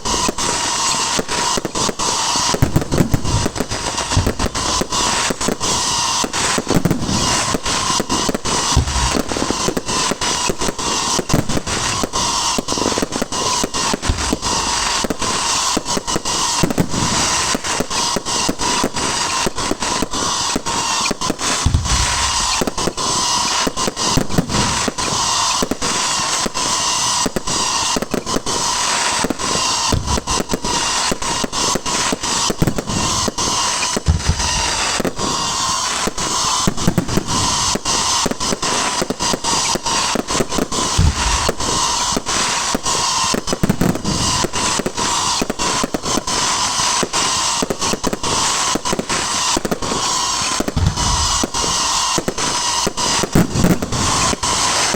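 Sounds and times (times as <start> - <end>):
fireworks crackling: 0.0 - 54.9
deep firework booms: 1.5 - 26.7, 29.8 - 54.9.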